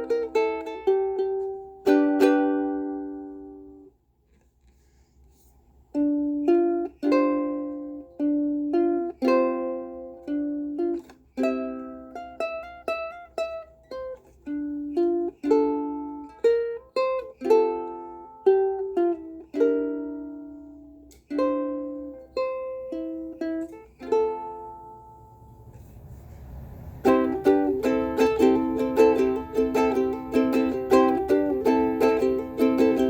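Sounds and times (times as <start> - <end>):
ukulele chords ringing: 0.0 - 3.9, 5.9 - 33.0.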